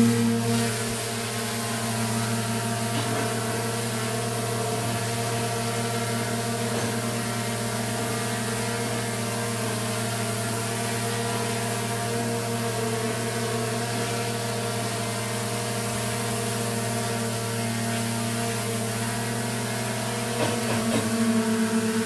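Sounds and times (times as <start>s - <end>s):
drone propellers humming: 0.0s - 5.8s, 20.4s - 22.0s.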